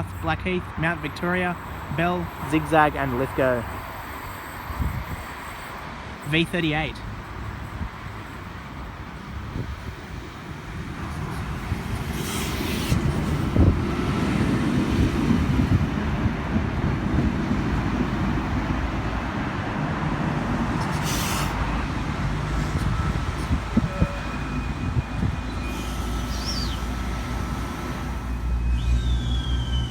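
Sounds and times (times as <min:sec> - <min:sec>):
train wheels and motors rumbling: 0:00.0 - 0:29.9
short high hisses: 0:20.9 - 0:21.6.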